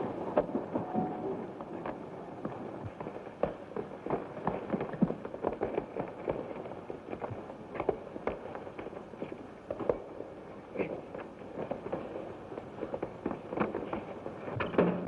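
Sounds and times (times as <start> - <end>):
film soundtrack hiss: 0.0 - 15.0.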